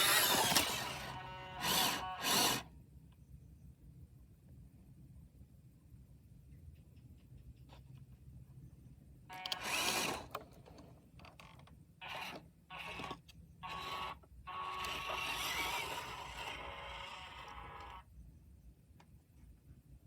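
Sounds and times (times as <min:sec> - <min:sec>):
toy truck electric motor whine: 0:00.0 - 0:02.7, 0:09.3 - 0:10.8, 0:11.4 - 0:18.1.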